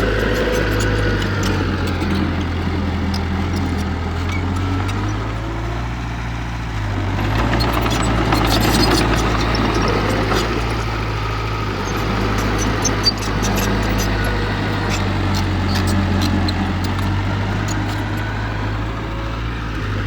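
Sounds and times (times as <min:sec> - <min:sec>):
diesel engine running: 0:00.0 - 0:20.0
clanks and clicks: 0:07.2 - 0:11.0, 0:11.8 - 0:18.2.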